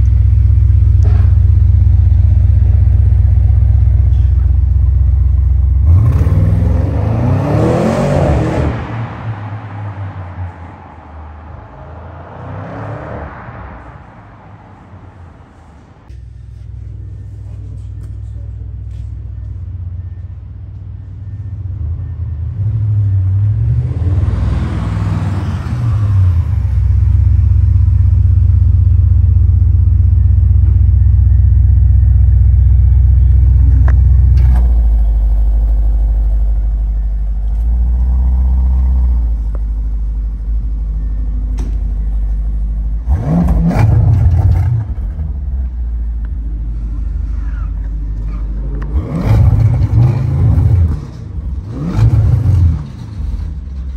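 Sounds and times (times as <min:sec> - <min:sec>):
vehicle engine revving: 0:00.0 - 0:09.2, 0:30.3 - 0:53.9.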